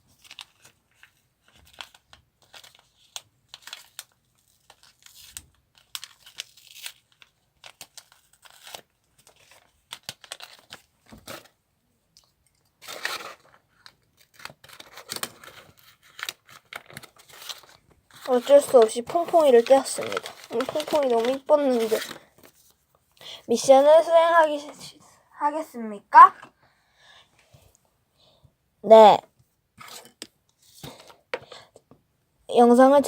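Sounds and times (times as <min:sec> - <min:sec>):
paper rustling: 0:00.0 - 0:11.5, 0:12.7 - 0:24.8
paper tearing: 0:12.8 - 0:13.6, 0:14.2 - 0:22.3.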